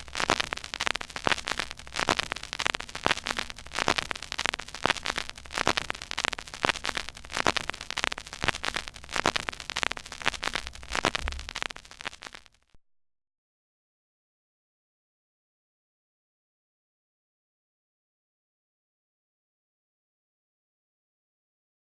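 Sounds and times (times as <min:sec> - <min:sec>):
vinyl surface crackle and pops: 0:00.0 - 0:12.8
faint low rumble: 0:01.8 - 0:11.8.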